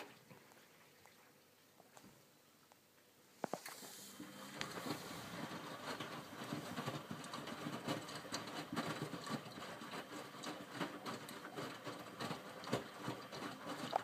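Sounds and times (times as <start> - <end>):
washing machine tumbling laundry: 4.0 - 14.0.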